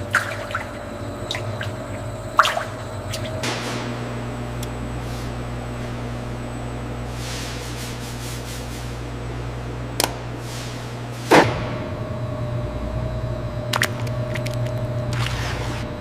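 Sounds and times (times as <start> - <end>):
factory machinery humming: 0.0 - 16.0.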